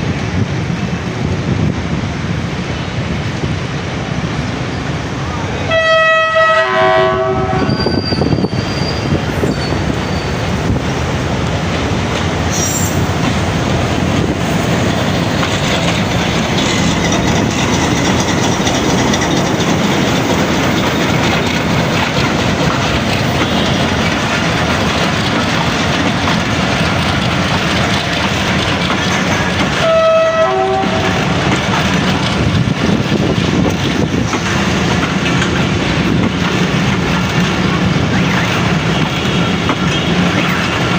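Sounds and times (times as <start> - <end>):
train horn: 5.6 - 8.0, 29.8 - 31.3
train wheels clattering over rail joints: 8.2 - 40.9.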